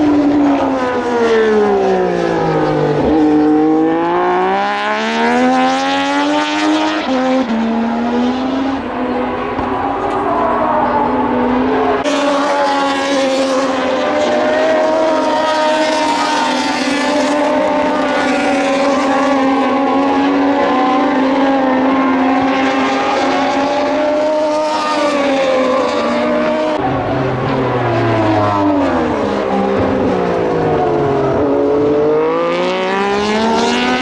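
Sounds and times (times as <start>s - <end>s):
racing motorcycles at high revs: 0.0s - 8.9s, 28.4s - 34.0s.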